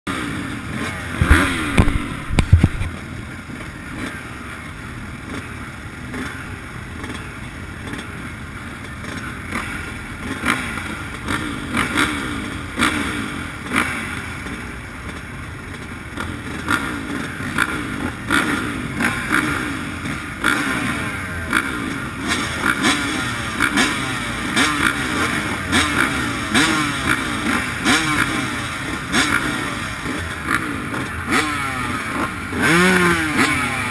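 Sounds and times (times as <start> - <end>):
motocross bike engine revving: 0.1 - 33.9
heavy thumps: 1.2 - 2.9
bike knocks and clatter: 1.2 - 3.0.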